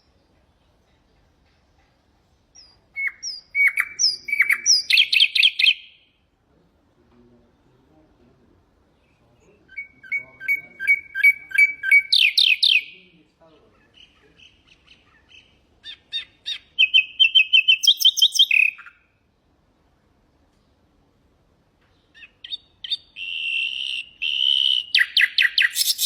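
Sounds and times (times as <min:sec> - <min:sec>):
nightingale singing: 0:02.5 - 0:06.2, 0:08.9 - 0:19.3, 0:21.8 - 0:26.0.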